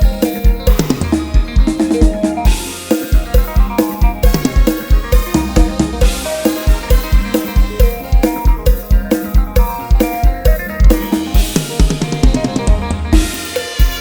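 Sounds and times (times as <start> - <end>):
band music with drums: 0.0 - 14.0
drum fill: 0.0 - 14.0.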